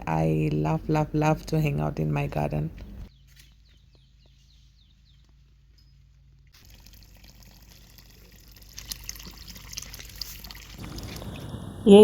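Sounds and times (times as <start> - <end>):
garden hose water spraying: 6.5 - 12.0.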